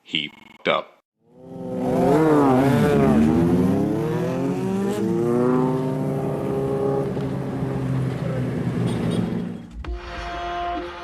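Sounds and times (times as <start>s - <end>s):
vehicle engine revving: 1.2s - 9.7s.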